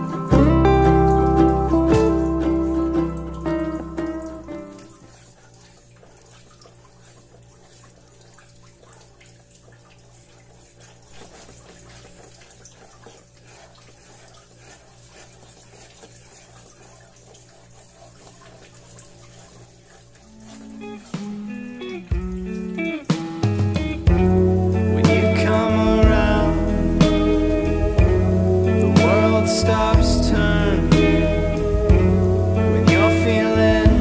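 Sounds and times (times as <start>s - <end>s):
background music: 0.0s - 5.0s, 20.4s - 34.0s
faint running water: 0.0s - 34.0s.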